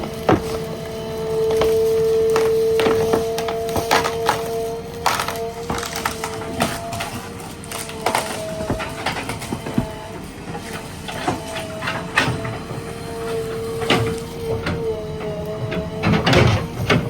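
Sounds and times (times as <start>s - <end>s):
wood cracking and knocking: 0.0s - 11.6s
backhoe mechanical whine: 0.0s - 17.0s.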